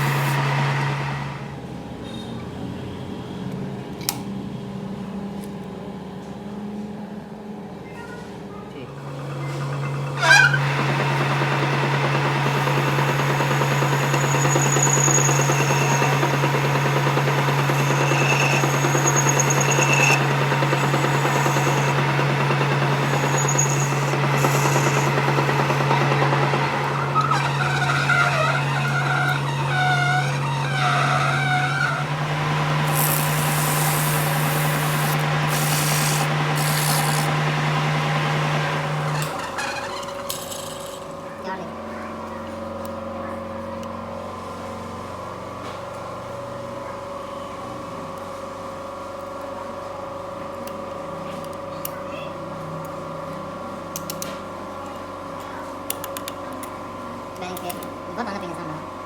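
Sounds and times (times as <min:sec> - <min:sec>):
machine humming: 0:00.0 - 0:01.5, 0:09.1 - 0:39.4
scraping and rubbing: 0:32.8 - 0:37.4.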